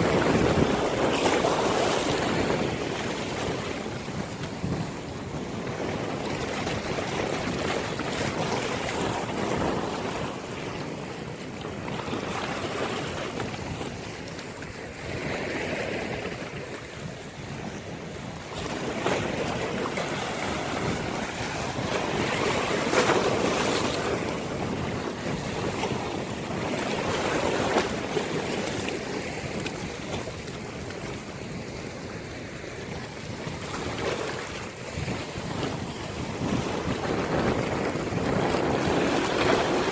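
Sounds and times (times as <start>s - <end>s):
sea waves breaking: 0.0s - 39.9s
wind rumble on microphone: 0.0s - 39.9s.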